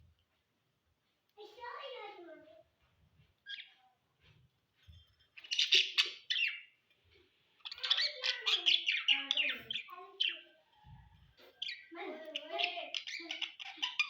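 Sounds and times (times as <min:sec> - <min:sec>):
budgerigars chirping: 0:05.4 - 0:06.8, 0:07.6 - 0:10.8, 0:11.4 - 0:14.0.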